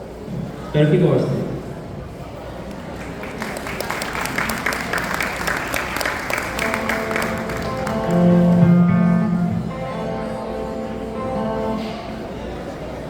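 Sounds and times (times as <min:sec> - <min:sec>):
audience applause: 0:02.9 - 0:09.2
small instrumental ensemble: 0:06.3 - 0:12.5.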